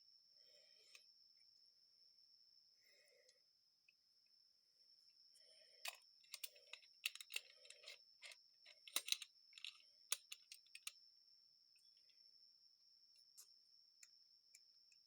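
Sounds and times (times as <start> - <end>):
small metal parts clicking: 5.8 - 11.0.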